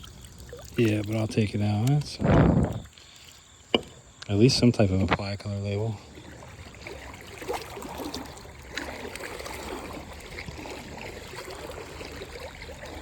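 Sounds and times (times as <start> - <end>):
river water trickling and splashing: 0.0 - 13.0
light knocks: 3.7 - 4.0.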